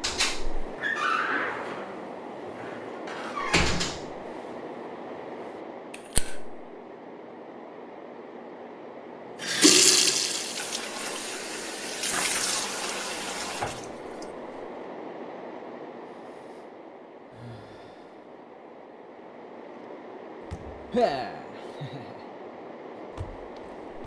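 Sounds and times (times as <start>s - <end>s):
tap water running into sink: 9.4s - 14.3s.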